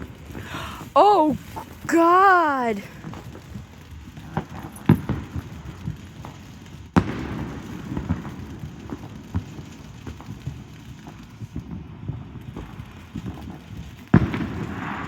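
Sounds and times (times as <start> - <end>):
fireworks bangs and pops: 0.0 - 15.0.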